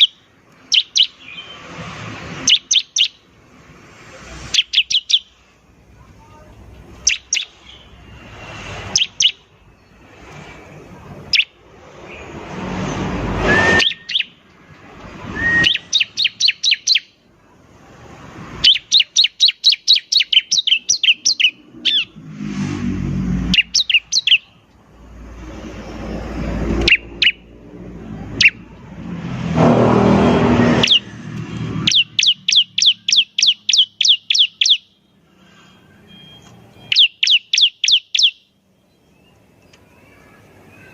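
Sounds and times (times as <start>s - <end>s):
bird singing sharp high chirps: 0.0s - 1.7s, 2.4s - 3.3s, 4.5s - 5.4s, 7.0s - 8.0s, 8.8s - 10.0s, 11.2s - 12.3s, 13.4s - 14.5s, 15.3s - 17.2s, 18.6s - 22.2s, 23.4s - 24.6s, 26.8s - 27.5s, 28.3s - 28.6s, 30.5s - 40.9s
harsh noisy bird calls: 0.0s - 40.9s.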